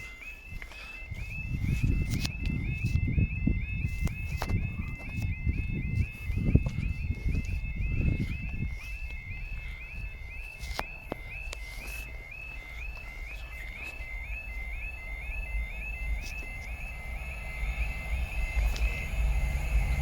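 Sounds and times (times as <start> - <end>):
level crossing alarm: 0.0 - 20.0
low rumble: 16.9 - 20.0.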